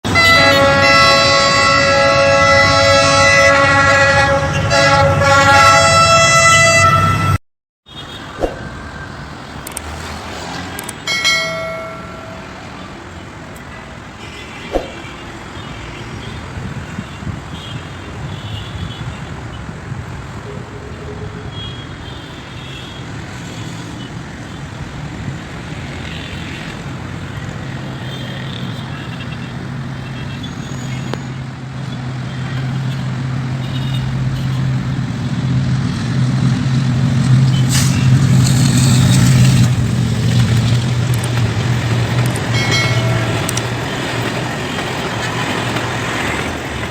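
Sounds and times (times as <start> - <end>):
locomotive air horn: 0.0 - 8.3, 37.5 - 39.8
train running noise: 8.1 - 14.1, 23.1 - 46.9
clicks: 9.6 - 9.9, 10.8 - 11.0, 43.4 - 43.7.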